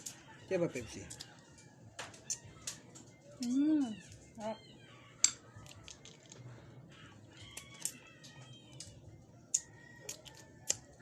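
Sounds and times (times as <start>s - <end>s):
crab shells cracking: 1.0s - 3.5s, 5.2s - 6.6s, 7.3s - 11.0s.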